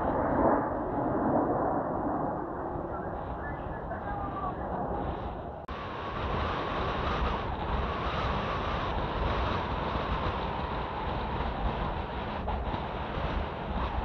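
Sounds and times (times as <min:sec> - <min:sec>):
jet engines roaring: 0:00.0 - 0:14.0
wind buffeting microphone: 0:00.0 - 0:14.0.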